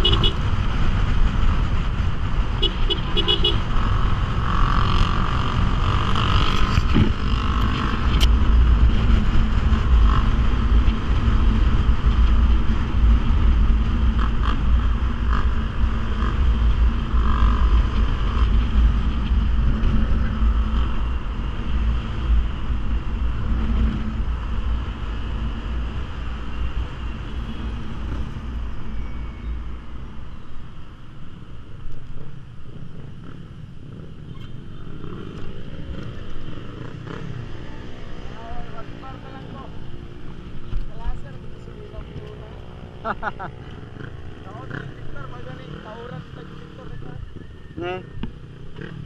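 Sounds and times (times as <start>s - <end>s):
motorcycle engine running: 0.0s - 29.6s, 32.2s - 49.0s
wind rumble on microphone: 0.0s - 30.8s.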